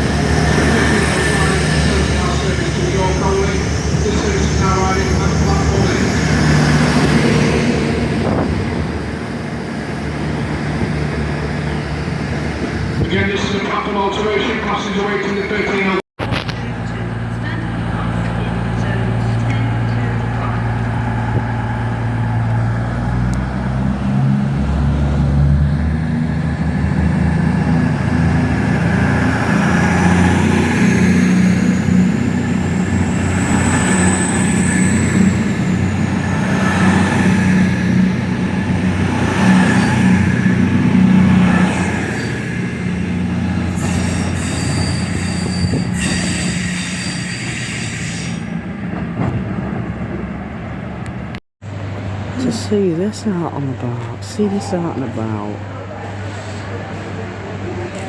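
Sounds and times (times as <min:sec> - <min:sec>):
high wheel squeal: 0:00.0 - 0:07.7, 0:30.5 - 0:48.6
train engine drone: 0:00.0 - 0:58.0.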